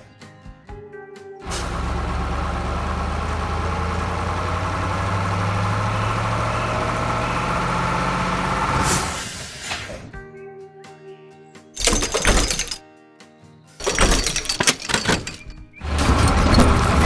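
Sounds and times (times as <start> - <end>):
heavy machinery engine rumbling: 1.5 - 8.8, 13.8 - 17.0.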